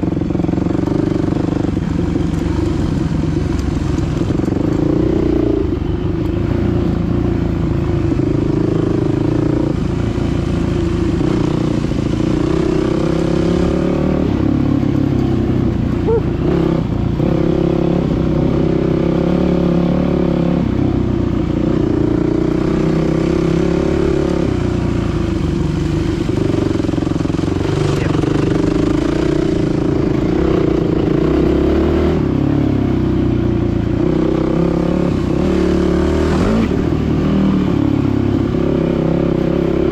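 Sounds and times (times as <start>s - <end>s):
dirt bike engine running: 21.5s - 32.6s.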